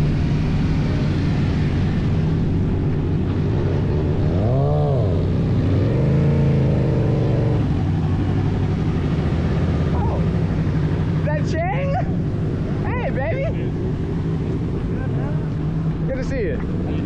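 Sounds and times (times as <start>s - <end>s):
engine idling and revving: 0.0s - 17.0s.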